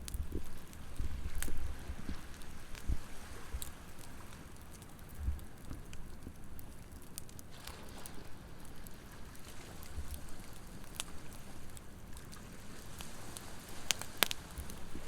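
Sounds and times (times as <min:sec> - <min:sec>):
campfire crackling and popping: 0:00.0 - 0:15.0
ocean waves: 0:07.5 - 0:11.7, 0:12.3 - 0:15.0.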